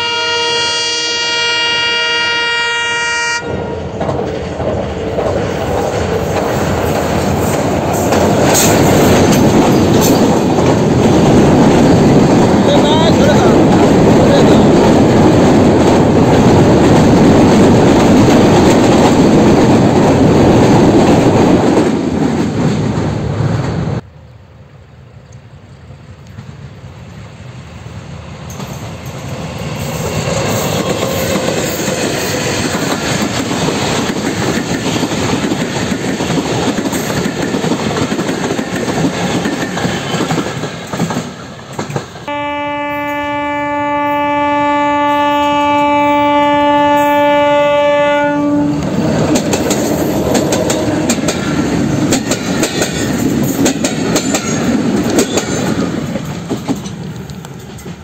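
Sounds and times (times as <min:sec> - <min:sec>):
diesel locomotive horn: 0:00.0 - 0:03.9, 0:42.3 - 0:49.1
train wheel clatter and rumble: 0:03.7 - 0:24.0, 0:26.2 - 0:42.3, 0:48.5 - 0:58.0.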